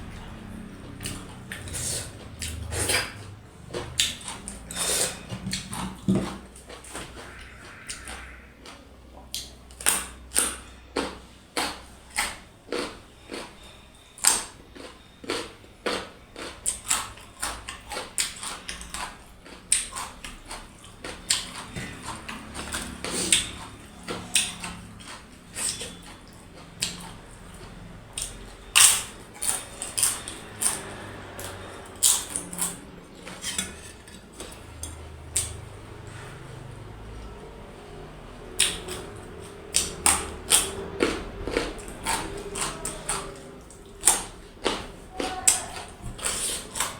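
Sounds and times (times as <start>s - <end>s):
chewing smacks: 1.0s - 13.6s, 14.2s - 33.6s, 38.4s - 46.9s
utensils clicking on plate: 38.6s - 46.9s.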